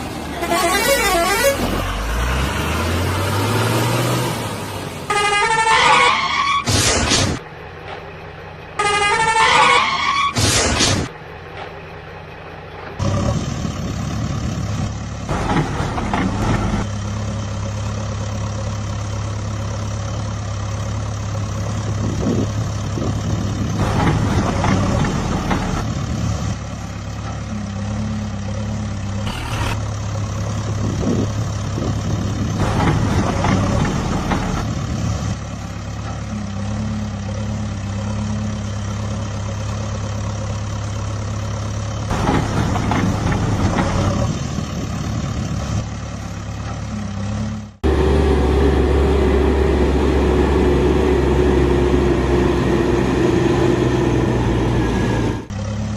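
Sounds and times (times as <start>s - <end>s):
heavy vehicle engine running: 0.0s - 55.9s.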